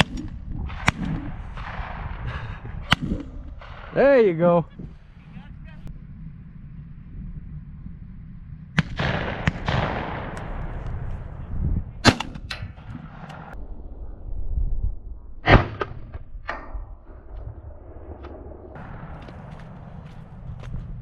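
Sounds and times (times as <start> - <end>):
shotgun shots with echo: 8.8 - 10.5, 12.0 - 12.5.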